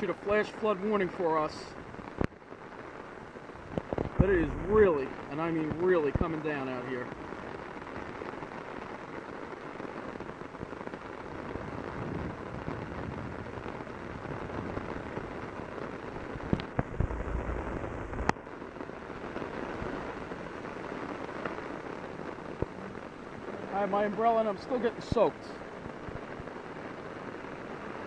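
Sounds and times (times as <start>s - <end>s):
heavy rain on an umbrella: 0.0s - 28.0s
low rumble: 4.1s - 5.0s, 16.7s - 18.4s.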